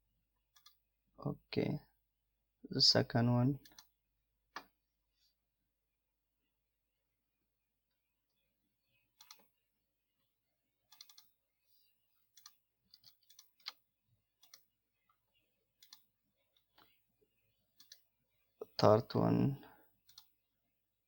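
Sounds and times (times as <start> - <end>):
computer mouse clicks: 0.5 - 0.8, 3.6 - 3.9, 9.2 - 9.5, 10.9 - 11.3, 12.4 - 13.8, 14.4 - 14.7, 15.8 - 16.1, 17.8 - 18.0, 20.1 - 20.3.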